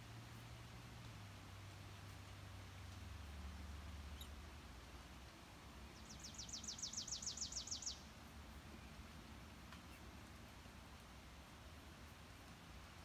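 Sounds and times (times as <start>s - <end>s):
songbird trill: 4.0s - 4.5s, 5.7s - 10.2s.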